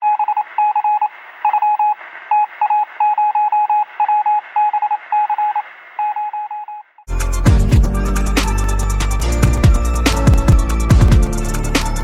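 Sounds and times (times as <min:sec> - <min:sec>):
morse code electronic beeps: 0:00.0 - 0:06.9.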